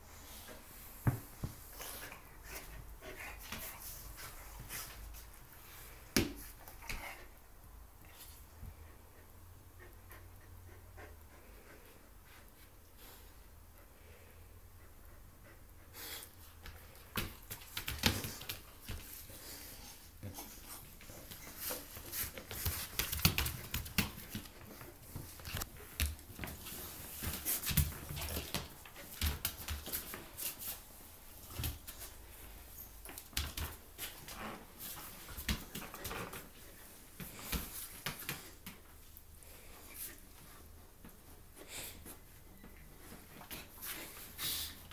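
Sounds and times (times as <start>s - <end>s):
dogs scuffling: 16.6s - 38.9s.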